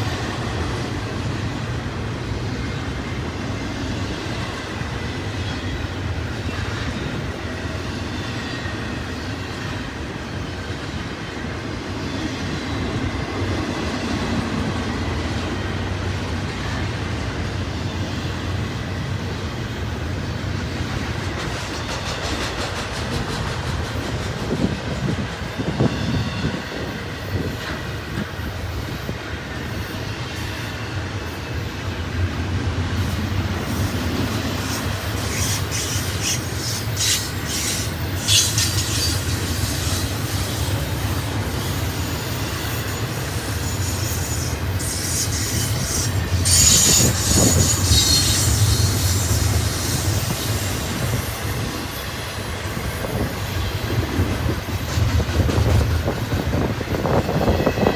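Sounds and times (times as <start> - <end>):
train wheels rumbling on rail: 0.0 - 57.9
metallic wheel squeal: 41.9 - 51.1.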